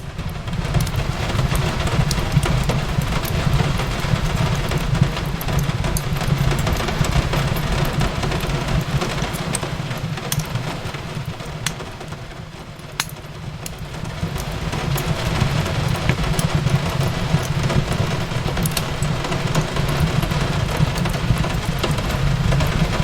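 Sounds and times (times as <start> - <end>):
rain hissing: 0.0 - 23.0
wood fire crackling: 0.0 - 23.0.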